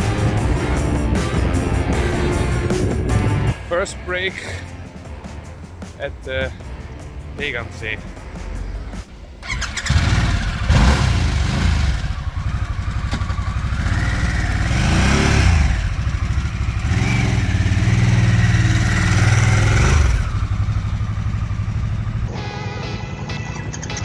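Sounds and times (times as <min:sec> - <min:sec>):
motorcycle engine accelerating: 0:08.5 - 0:22.3.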